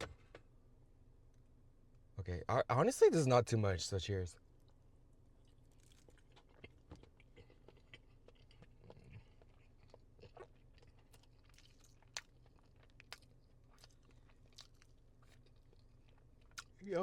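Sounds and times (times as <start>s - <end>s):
soft chewing: 4.4s - 17.0s.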